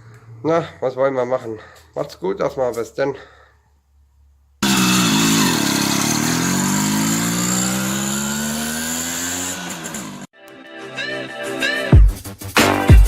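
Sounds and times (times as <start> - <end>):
moped engine accelerating: 4.6 - 10.3.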